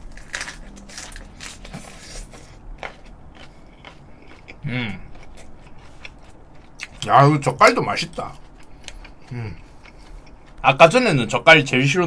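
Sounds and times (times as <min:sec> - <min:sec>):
crisp chewing crunches: 0:00.0 - 0:11.0
person humming: 0:04.6 - 0:05.1, 0:09.3 - 0:09.6.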